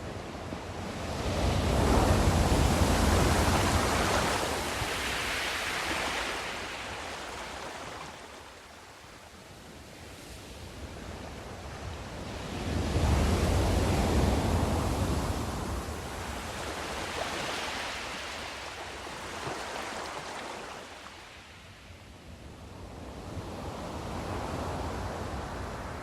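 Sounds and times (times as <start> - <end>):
sea waves washing: 1.4 - 8.6, 13.0 - 21.2.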